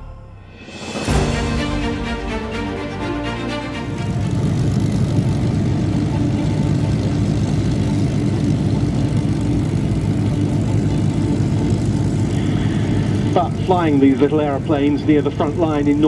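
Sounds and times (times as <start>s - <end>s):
music track: 0.0s - 13.2s
propeller aircraft flying past: 3.9s - 14.7s.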